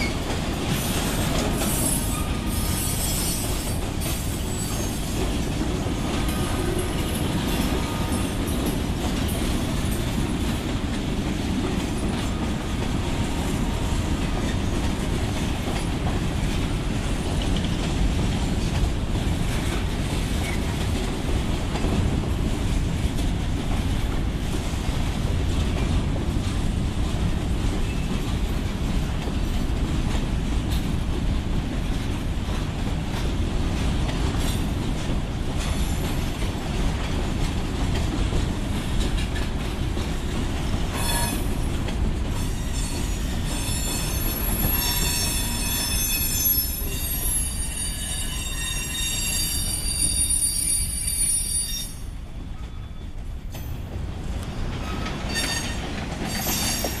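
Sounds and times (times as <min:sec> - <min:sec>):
train wheels squealing: 0:00.0 - 0:05.4, 0:27.8 - 0:28.3, 0:40.9 - 0:41.7, 0:42.3 - 0:53.9, 0:54.7 - 0:57.0
freight train rolling over rails: 0:00.0 - 0:57.0.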